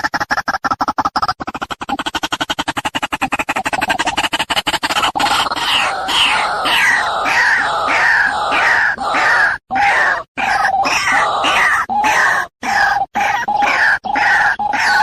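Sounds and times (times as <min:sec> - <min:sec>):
waterhen calling harshly: 0:05.2 - 0:15.0.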